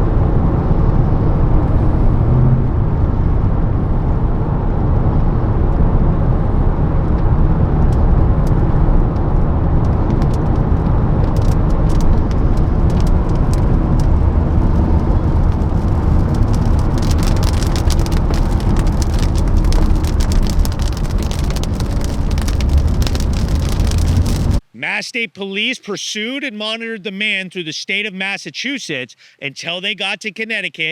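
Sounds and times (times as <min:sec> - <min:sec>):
motor vehicle rumble: 0:00.0 - 0:24.6.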